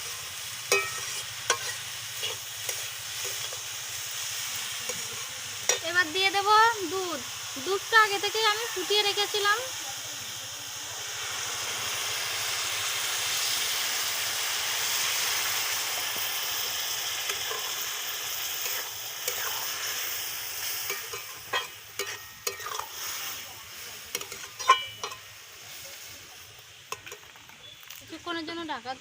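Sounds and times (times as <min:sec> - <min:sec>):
spoon scraping a pan: 0:00.0 - 0:03.8, 0:04.9 - 0:06.0, 0:17.2 - 0:23.4, 0:24.1 - 0:25.4
milk sizzling in hot pan: 0:00.0 - 0:29.0.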